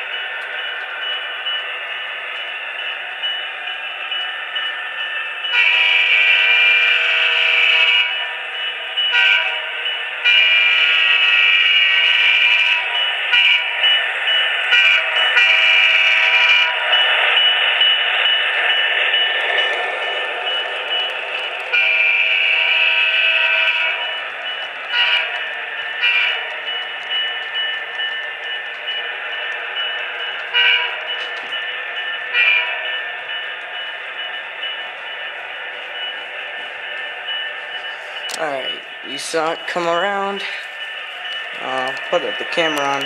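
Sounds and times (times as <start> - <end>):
model train air horn blasts: 5.5 - 8.1, 9.1 - 9.6.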